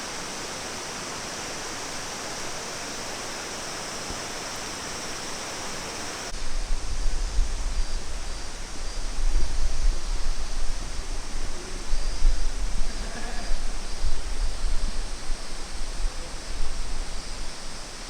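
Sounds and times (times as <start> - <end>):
rushing water: 0.0 - 6.3.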